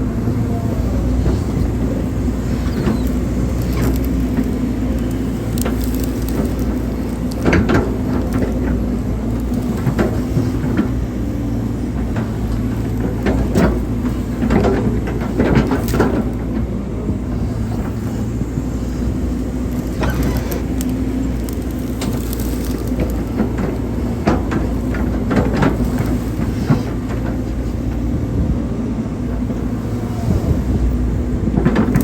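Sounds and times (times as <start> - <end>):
excavator diesel engine: 0.0 - 32.0.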